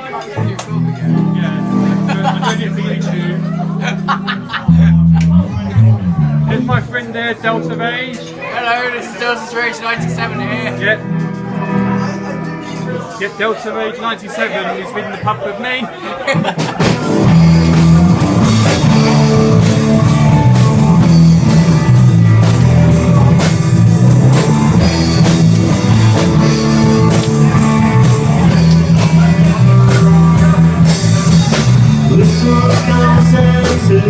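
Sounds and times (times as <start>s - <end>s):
bass guitar: 0.0s - 8.6s, 9.9s - 13.3s, 16.3s - 34.0s
electric guitar: 0.2s - 8.6s, 10.0s - 13.2s, 16.4s - 34.0s
drum kit beat: 0.4s - 5.6s, 16.3s - 34.0s.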